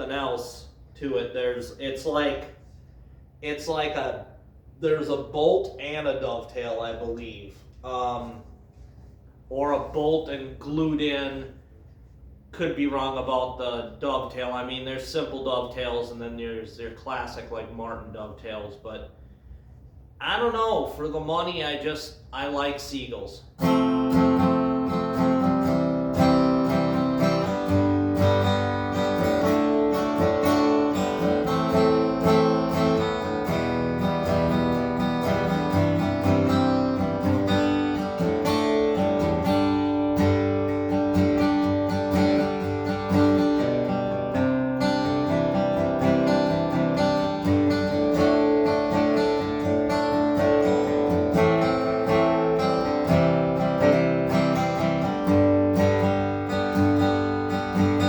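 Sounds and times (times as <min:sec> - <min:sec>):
acoustic guitar strumming chords: 0:23.6 - 0:58.0.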